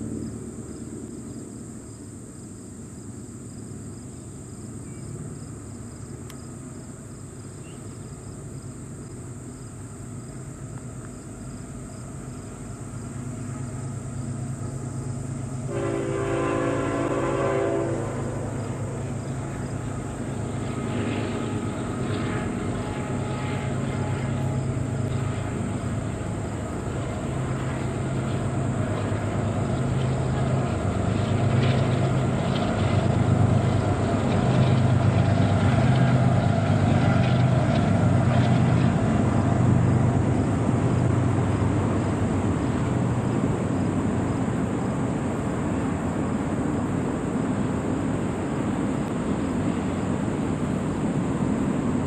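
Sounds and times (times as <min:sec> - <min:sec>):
diesel locomotive engine hum: 0:00.0 - 0:52.0
train rolling rumble: 0:00.0 - 0:52.0.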